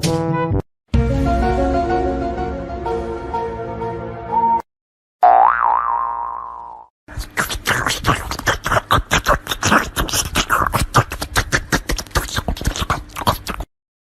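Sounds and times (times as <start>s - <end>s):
mouth clicks and pops: 6.3s - 13.7s.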